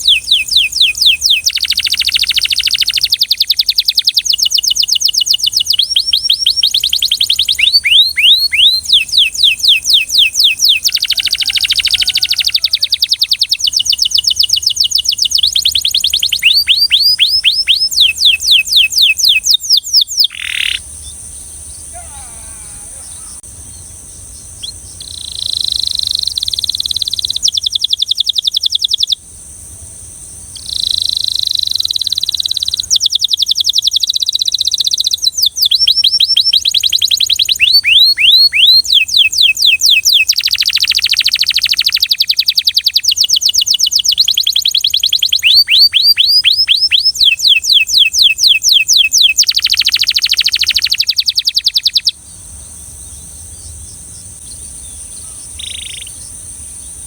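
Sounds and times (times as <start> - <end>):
canary singing trills: 0.0 - 29.2, 30.5 - 57.0.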